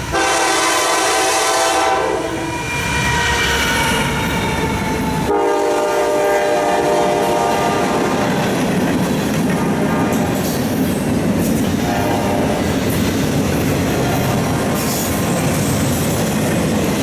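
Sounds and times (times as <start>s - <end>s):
train air horn: 0.1s - 8.4s, 11.8s - 12.7s
train wheels clattering on rails: 2.3s - 17.0s.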